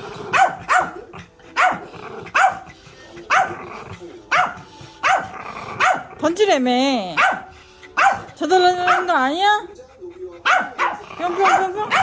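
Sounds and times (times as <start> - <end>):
dog barking sharply: 0.4 - 1.0, 10.5 - 12.0.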